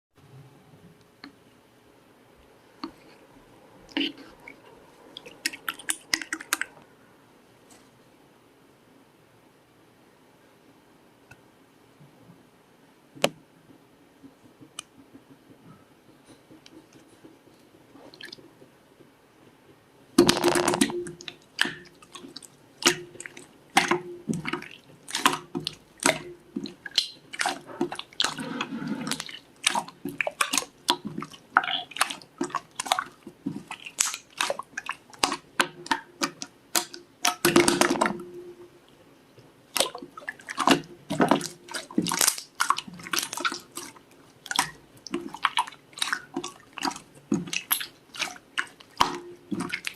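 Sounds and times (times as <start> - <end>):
slime clicking and squishing: 20.2 - 38.1, 39.7 - 49.9.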